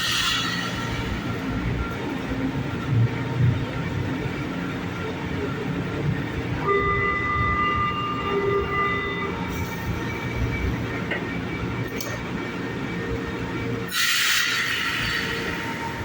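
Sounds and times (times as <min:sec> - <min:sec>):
metro train rumbling: 0:00.0 - 0:16.0
multi-pitch tone: 0:06.6 - 0:10.2.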